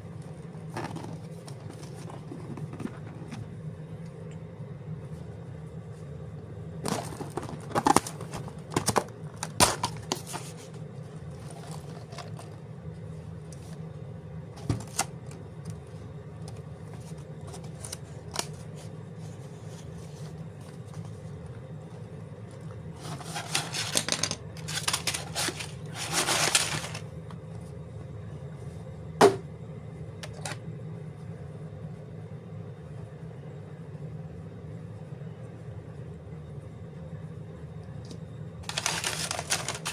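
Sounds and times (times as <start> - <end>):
steady low hum: 0.0 - 39.9
card and plastic bags rustling tearing: 6.9 - 10.7, 11.3 - 12.6, 23.0 - 27.1, 38.6 - 39.9.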